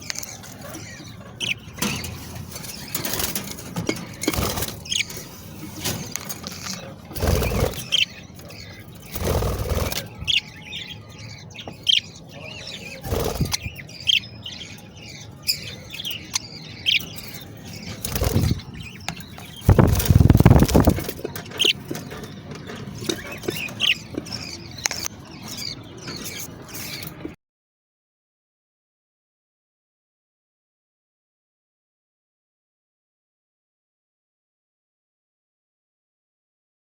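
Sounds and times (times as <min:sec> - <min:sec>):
bird chicks chirping: 0:00.0 - 0:27.4
rustling noises: 0:01.7 - 0:07.8, 0:17.3 - 0:27.4.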